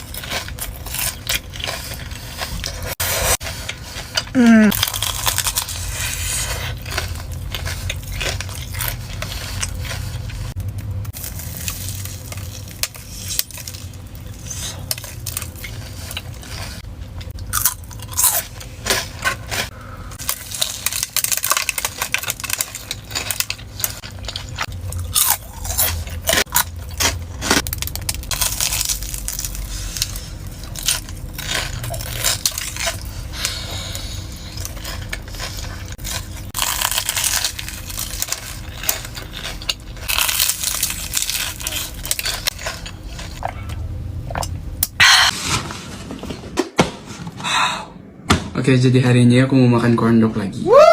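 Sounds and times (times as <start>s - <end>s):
chewing: 0.0s - 45.0s
crunching bites of fried food: 0.0s - 45.0s
low steady hum: 0.0s - 50.9s.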